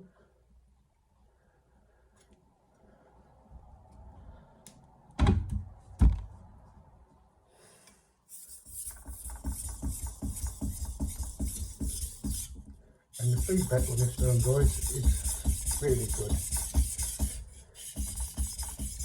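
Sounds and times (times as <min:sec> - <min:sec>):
sharp knocks: 0:08.9 - 0:12.8.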